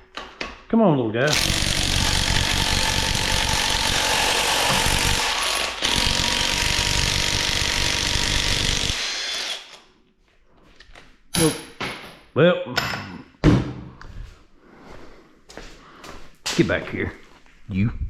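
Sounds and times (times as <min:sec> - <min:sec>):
impact wrench hammering at a bolt: 0:01.3 - 0:09.6.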